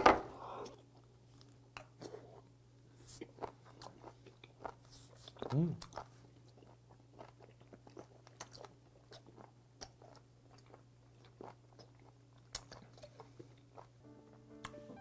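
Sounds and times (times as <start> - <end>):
wet chewing: 3.2 - 14.0.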